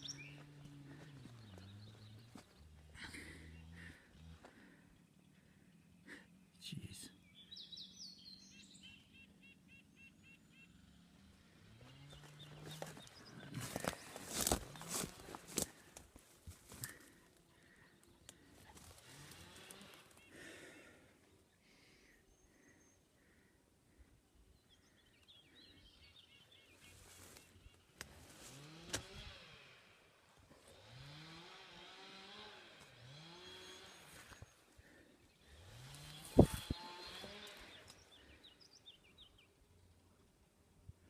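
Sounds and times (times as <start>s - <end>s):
songbird singing faintly: 0.0s - 2.8s
faint outdoor ambience: 0.0s - 41.0s.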